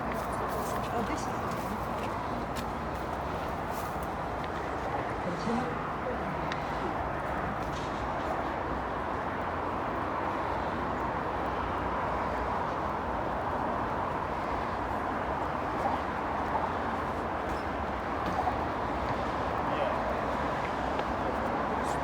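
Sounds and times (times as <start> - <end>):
road traffic rushing: 0.0 - 22.0.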